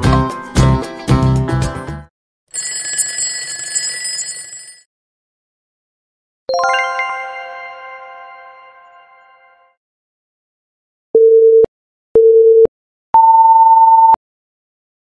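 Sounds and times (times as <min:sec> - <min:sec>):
upbeat background music: 0:00.0 - 0:02.1, 0:06.5 - 0:08.9
electric bell ringing: 0:02.6 - 0:04.8
bright chime notes: 0:06.5 - 0:09.7.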